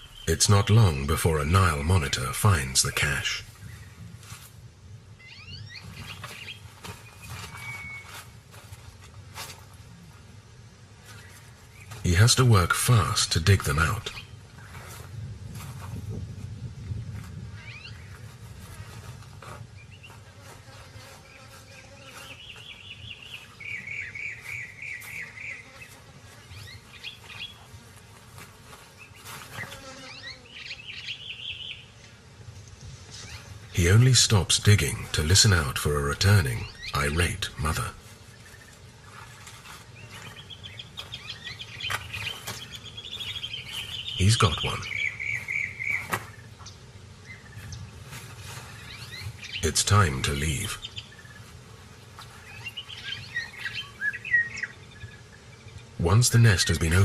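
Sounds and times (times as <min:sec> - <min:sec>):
birds chirping: 0:00.0 - 0:04.0, 0:05.1 - 0:08.3, 0:11.0 - 0:14.9, 0:17.5 - 0:18.9, 0:19.7 - 0:27.9, 0:28.9 - 0:57.0
insect buzz: 0:17.9 - 0:34.1, 0:37.9 - 0:56.0.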